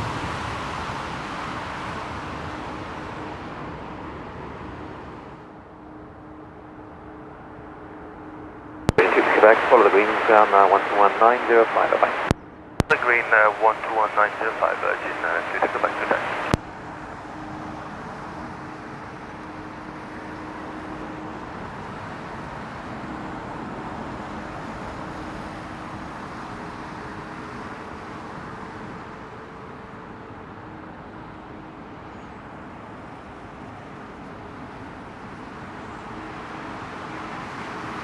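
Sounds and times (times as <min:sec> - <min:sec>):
airliner engines rumbling: 0:08.9 - 0:16.6
faint steady hum: 0:08.9 - 0:16.6.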